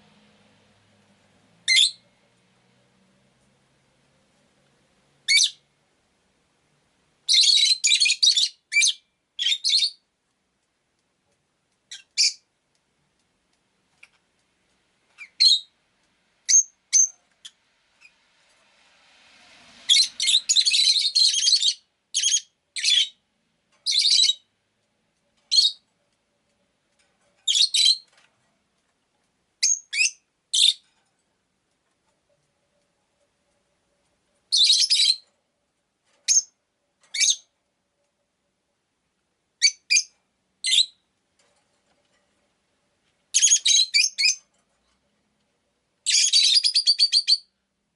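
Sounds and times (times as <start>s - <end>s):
lovebird chirping: 1.6s - 2.0s, 5.2s - 5.6s, 7.3s - 10.0s, 11.9s - 12.5s, 15.2s - 15.8s, 16.5s - 18.2s, 19.8s - 23.2s, 23.8s - 24.5s, 25.5s - 25.8s, 27.4s - 28.1s, 29.6s - 30.8s, 34.5s - 35.2s, 36.3s - 37.5s, 39.6s - 41.0s, 43.3s - 44.4s, 46.0s - 47.5s.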